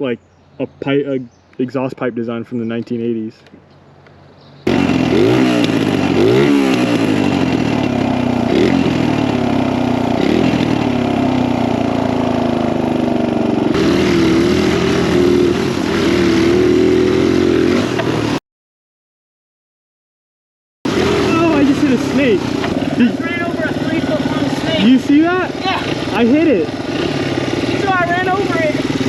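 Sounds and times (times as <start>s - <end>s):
dirt bike engine revving: 4.6s - 18.4s, 20.9s - 29.0s.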